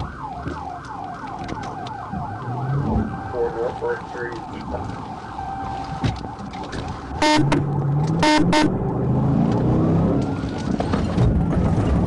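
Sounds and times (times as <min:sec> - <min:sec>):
distant siren wailing: 0:00.0 - 0:10.9
road noise: 0:00.0 - 0:12.0
vehicle horn honking: 0:07.2 - 0:07.6, 0:08.2 - 0:08.7.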